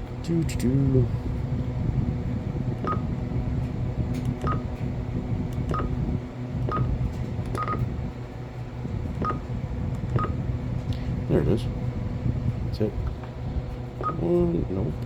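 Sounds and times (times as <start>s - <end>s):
steady low hum: 0.0s - 15.0s
keypad beeps: 2.9s - 3.1s, 4.4s - 4.7s, 5.7s - 6.0s, 6.7s - 6.9s, 7.6s - 7.9s, 9.2s - 9.4s, 10.2s - 10.4s, 14.0s - 14.2s.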